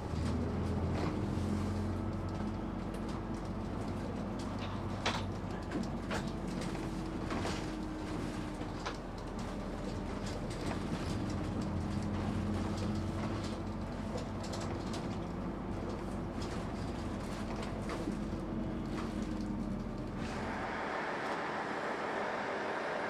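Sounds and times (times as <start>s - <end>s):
train running on rails: 0.0s - 23.0s.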